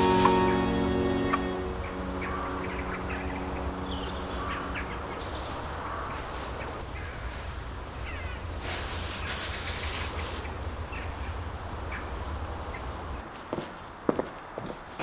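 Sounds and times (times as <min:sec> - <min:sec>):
music track: 0:00.0 - 0:05.7
steady low rumble: 0:00.0 - 0:07.0
birds chirping: 0:00.0 - 0:07.3.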